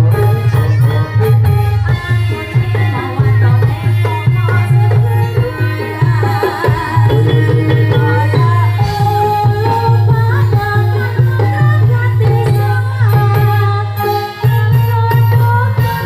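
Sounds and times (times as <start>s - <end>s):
person singing: 0.0s - 16.0s
hand drums beating: 1.8s - 13.8s.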